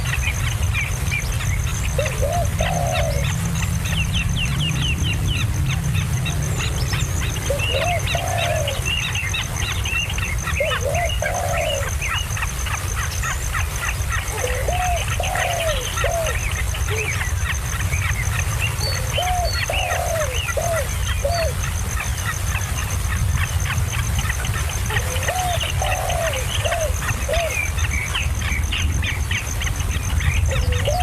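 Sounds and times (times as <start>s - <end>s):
steady low rumble: 0.0s - 11.2s
lower arching bird call: 1.9s - 17.5s, 24.8s - 28.2s.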